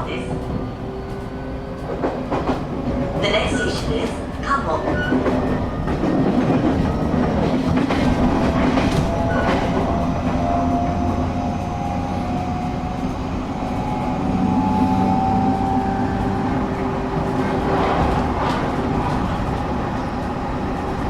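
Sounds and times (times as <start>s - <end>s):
train wheels rumbling on rail: 0.0s - 21.0s
track joint clacks: 0.3s - 14.5s.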